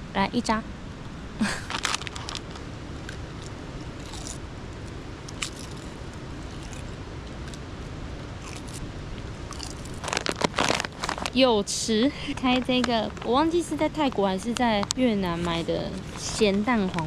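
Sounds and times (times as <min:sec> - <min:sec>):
campfire burning: 0:00.8 - 0:17.0
fire crackles and pops: 0:01.4 - 0:11.5.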